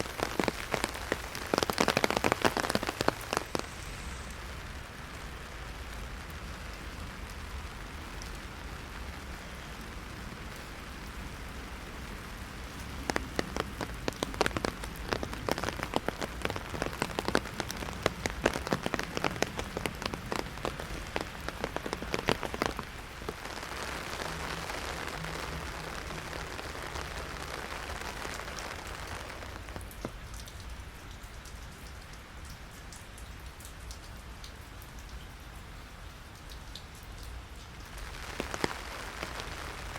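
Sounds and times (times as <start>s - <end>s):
rain pattering on an umbrella: 0.0s - 39.9s.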